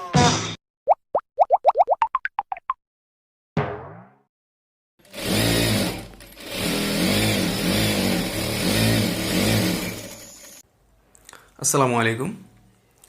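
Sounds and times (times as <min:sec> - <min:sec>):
electric sewing machine running: 0:05.0 - 0:10.6.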